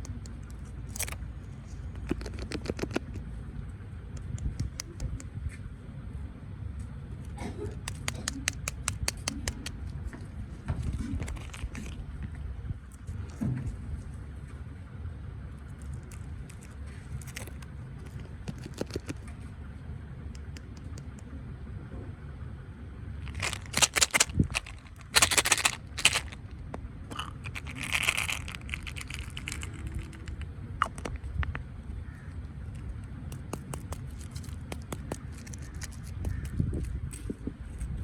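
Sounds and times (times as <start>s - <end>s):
steady low rumble: 0.0s - 38.0s
scraping handling noises: 0.1s - 3.2s, 7.8s - 13.8s, 15.8s - 19.3s, 23.2s - 31.6s, 32.7s - 36.3s.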